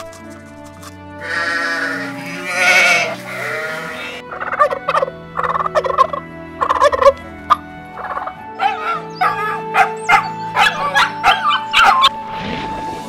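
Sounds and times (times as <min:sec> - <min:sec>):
background music: 0:00.0 - 0:13.0
sheep bleating: 0:01.2 - 0:04.2
turkey gobbling: 0:01.2 - 0:12.1.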